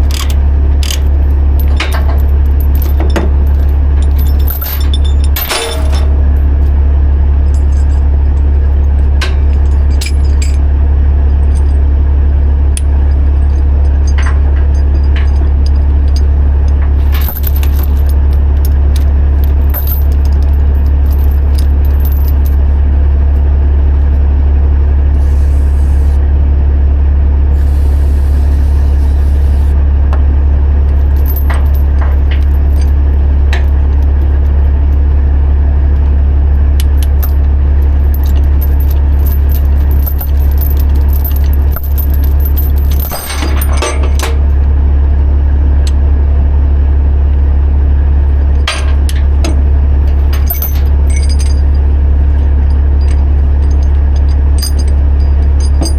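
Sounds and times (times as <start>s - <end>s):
metallic clinks and jingles: 0.0s - 6.8s, 7.4s - 12.0s, 12.8s - 22.7s, 30.9s - 34.4s, 36.8s - 44.5s, 48.6s - 55.9s
heavy truck engine droning: 0.0s - 55.9s.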